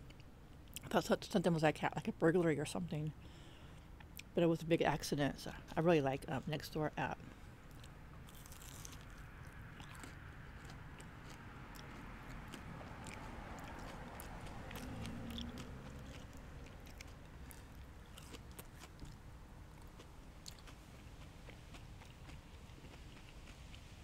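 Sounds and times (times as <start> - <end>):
low steady hum: 0.0 - 24.0
chewing crunchy food: 7.2 - 24.0.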